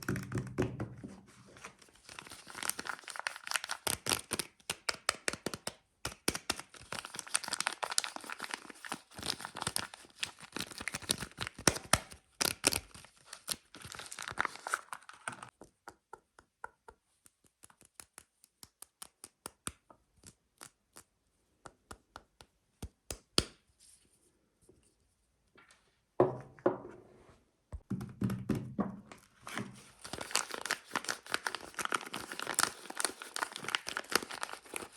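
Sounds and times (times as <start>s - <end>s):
packaging crinkling and tearing: 1.9s - 15.5s, 29.4s - 34.9s.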